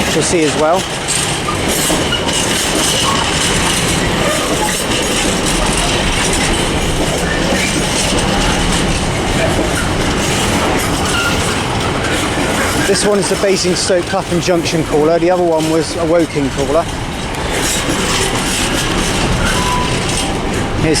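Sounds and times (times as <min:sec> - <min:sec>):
clickety-clack of wheels: 0:00.0 - 0:21.0
train wheels rumbling on rails: 0:00.0 - 0:21.0
faint wheel squeal: 0:19.4 - 0:20.2.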